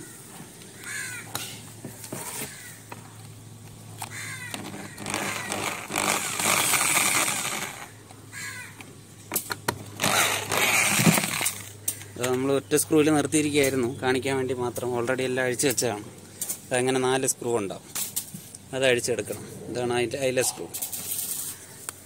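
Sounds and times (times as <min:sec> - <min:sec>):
screw grinding and rasping: 0:04.0 - 0:08.0, 0:10.0 - 0:11.7.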